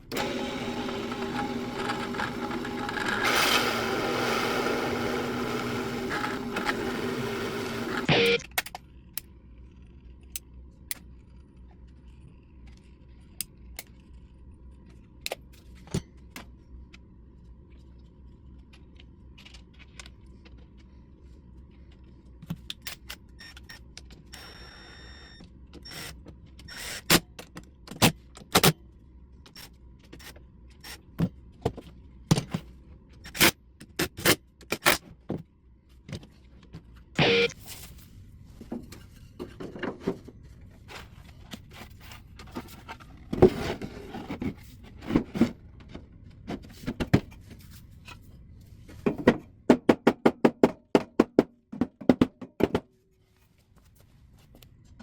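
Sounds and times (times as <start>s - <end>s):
power tool burst: 0.1s - 8.4s.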